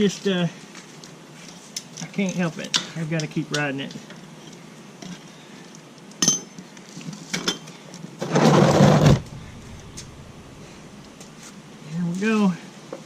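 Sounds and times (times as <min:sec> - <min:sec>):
loud noisy rush: 0:08.8 - 0:11.5.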